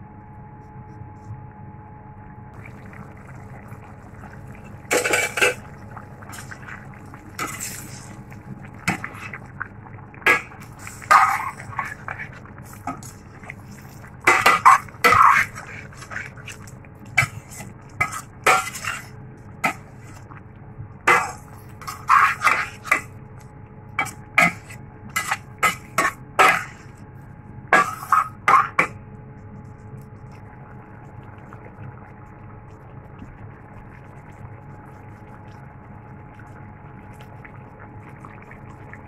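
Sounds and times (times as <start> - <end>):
low steady hum: 0.0 - 39.0
utensil scraping metal pot: 4.9 - 5.7, 7.4 - 8.2, 10.2 - 16.6, 17.2 - 20.2, 21.1 - 23.1, 24.0 - 26.9.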